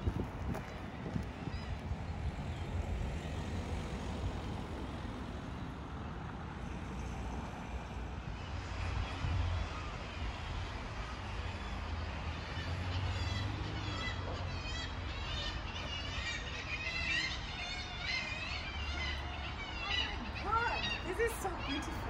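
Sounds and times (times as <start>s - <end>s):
birds chirping and warbling: 8.2s - 22.0s.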